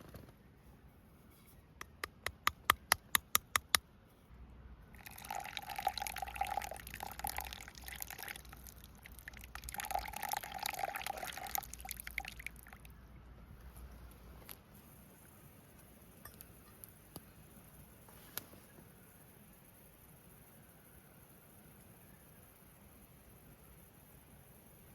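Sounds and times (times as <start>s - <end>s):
sharp clicks: 1.8s - 3.8s
liquid pouring into container: 4.9s - 12.9s.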